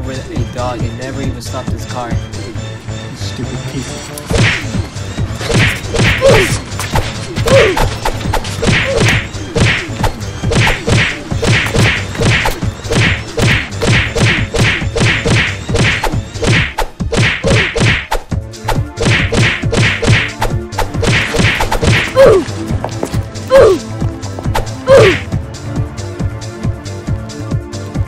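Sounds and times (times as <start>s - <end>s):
punch whacks and thuds: 4.3s - 4.7s, 5.5s - 22.4s.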